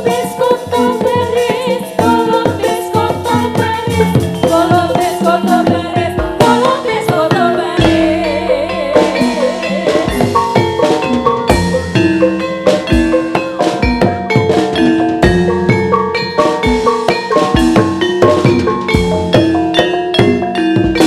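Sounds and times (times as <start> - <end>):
person singing: 0.0 - 10.8
drum strokes: 0.0 - 21.0
metal-keyed percussion instruments: 0.0 - 21.0.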